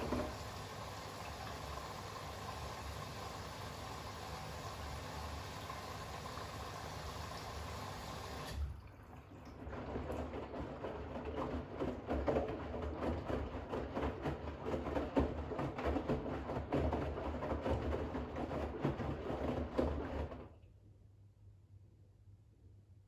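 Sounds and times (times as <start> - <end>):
washing machine drum turning: 0.0 - 5.8
water hissing into drum: 0.0 - 8.7.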